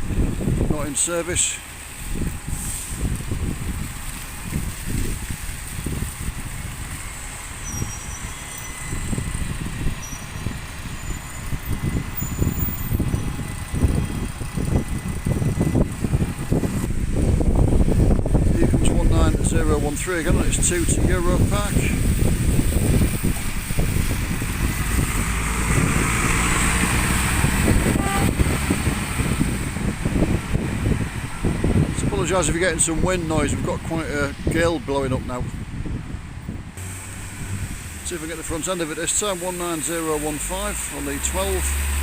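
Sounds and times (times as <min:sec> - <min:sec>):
bus running past: 0:00.0 - 0:32.9, 0:35.7 - 0:42.0
tyres hissing on wet road: 0:00.0 - 0:34.5, 0:36.8 - 0:42.0
wind buffeting microphone: 0:00.0 - 0:40.4.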